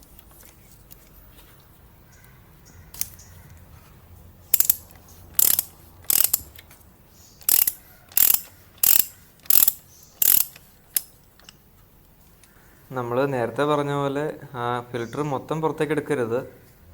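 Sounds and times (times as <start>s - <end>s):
ratchet wrench clicking: 4.5s - 6.6s, 7.4s - 11.2s.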